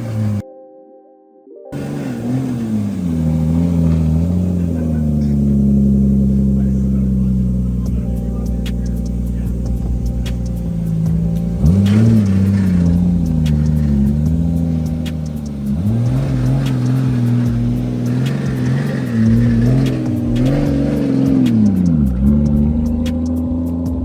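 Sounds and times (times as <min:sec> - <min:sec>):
car engine revving: 0:00.0 - 0:00.4, 0:01.8 - 0:24.0
background music with beat: 0:03.2 - 0:24.0.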